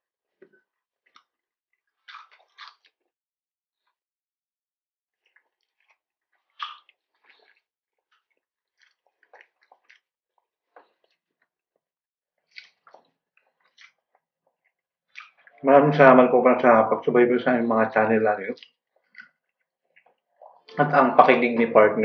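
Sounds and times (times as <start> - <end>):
chewing crispy fried food: 0.6 - 3.2, 5.1 - 15.6, 18.4 - 20.8
wet mouth clicks: 5.3 - 7.7, 15.1 - 15.6.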